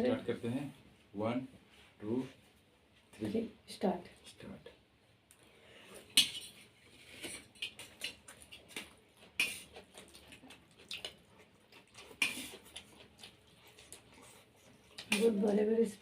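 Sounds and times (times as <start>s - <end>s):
chewing: 5.3s - 15.6s
slurping: 6.8s - 15.3s.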